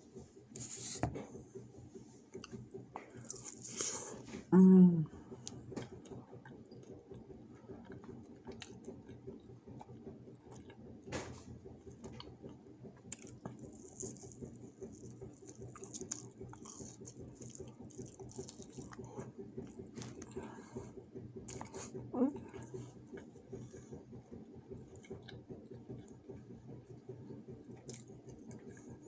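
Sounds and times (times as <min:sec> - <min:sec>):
steady low hum: 0:00.0 - 0:29.0
person chewing food: 0:02.4 - 0:04.3, 0:05.4 - 0:10.9, 0:12.1 - 0:20.8, 0:21.5 - 0:23.9, 0:27.8 - 0:29.0.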